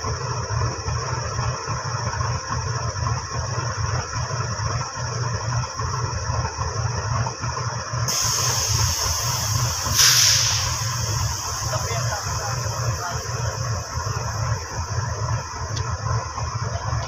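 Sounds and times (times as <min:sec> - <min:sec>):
distant diesel train rumble: 0:00.0 - 0:17.0
broad hiss: 0:08.1 - 0:15.2
steady high hiss: 0:08.1 - 0:15.4.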